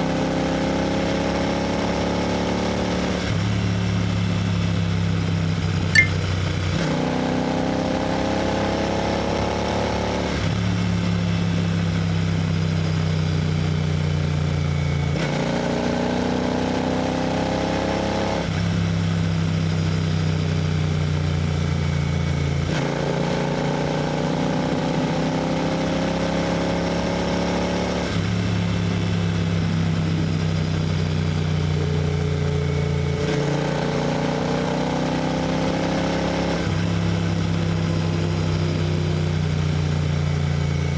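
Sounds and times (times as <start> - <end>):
motorcycle engine cruising: 16.3 - 40.9.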